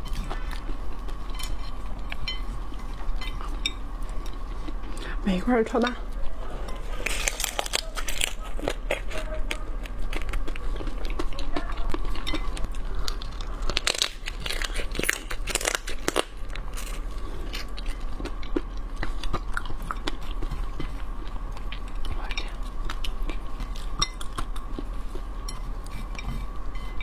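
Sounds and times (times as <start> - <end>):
crunching crab shell: 6.8 - 26.6.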